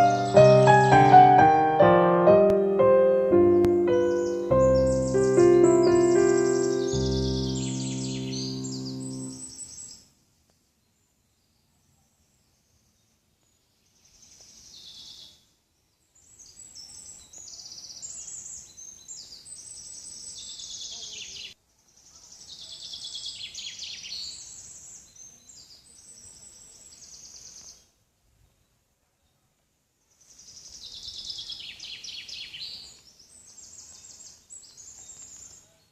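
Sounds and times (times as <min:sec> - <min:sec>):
birds singing trills: 0:03.5 - 0:10.0.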